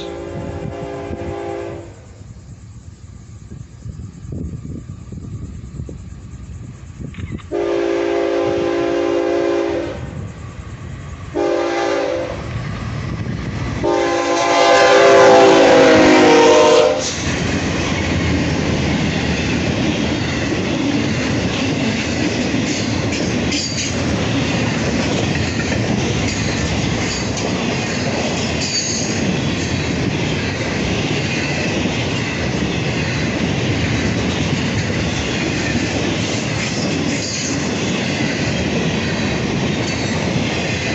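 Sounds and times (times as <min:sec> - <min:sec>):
train horn blasts: 0:00.0 - 0:02.1, 0:07.5 - 0:10.1, 0:11.4 - 0:12.4, 0:13.8 - 0:17.1
train wheels on rails: 0:00.0 - 0:40.9.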